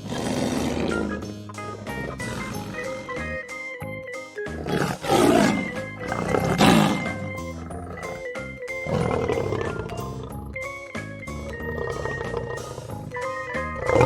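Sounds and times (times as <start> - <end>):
lion roaring: 0.0 - 3.4, 4.6 - 10.3, 11.5 - 14.0
background music: 0.0 - 14.0.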